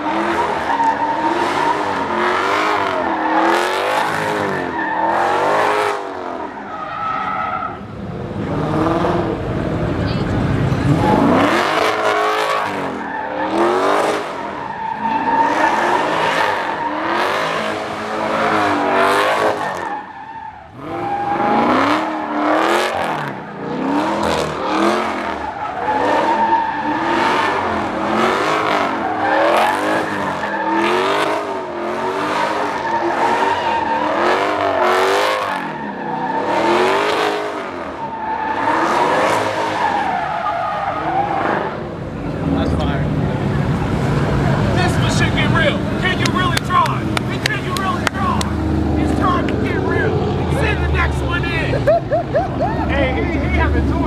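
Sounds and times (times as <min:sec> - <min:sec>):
car engine revving: 0:00.0 - 0:54.0
tyres squealing: 0:42.5 - 0:54.0.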